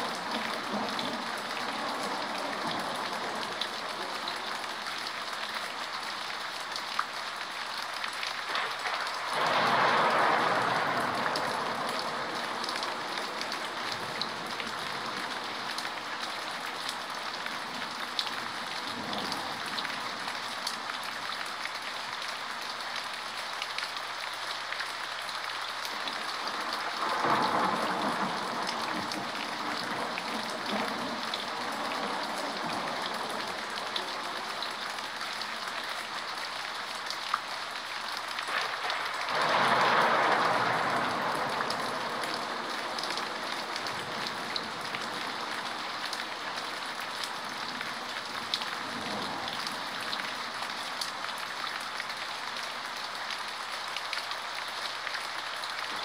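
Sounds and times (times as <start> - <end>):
steady rain falling: 0.0 - 56.0
rolling thunder: 8.5 - 15.4, 26.4 - 34.0, 38.5 - 45.5.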